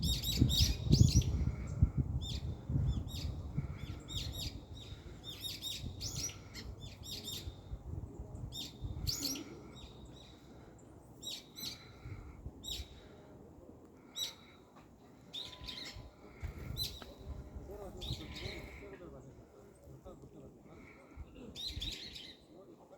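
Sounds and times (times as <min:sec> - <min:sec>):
small birds chirping: 0:00.0 - 0:22.8.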